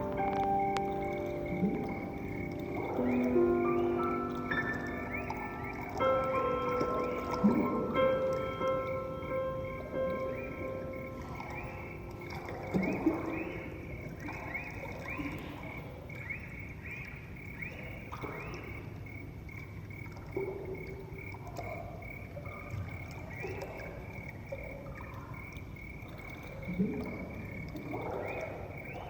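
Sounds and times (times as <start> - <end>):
upward-swooping chirps: 0.0 - 17.0
soft lower tones: 0.0 - 18.3.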